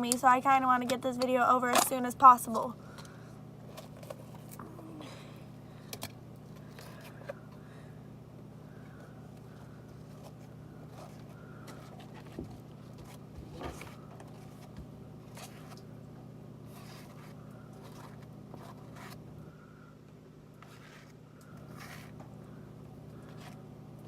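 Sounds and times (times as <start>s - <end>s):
slime scraping and rustling: 10.1s - 15.9s, 16.6s - 19.3s, 20.6s - 22.2s.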